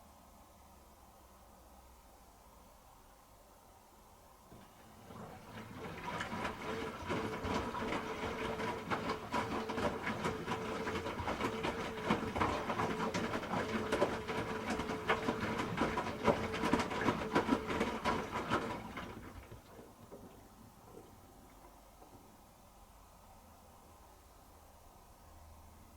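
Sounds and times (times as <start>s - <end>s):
washing machine motor whine: 4.5s - 21.6s
wet laundry tumbling: 4.5s - 22.4s.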